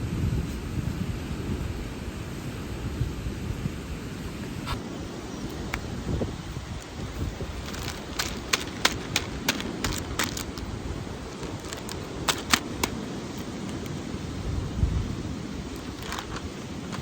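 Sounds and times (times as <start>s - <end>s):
sharp irregular clicks: 7.6s - 10.7s, 11.4s - 13.0s, 16.0s - 17.0s.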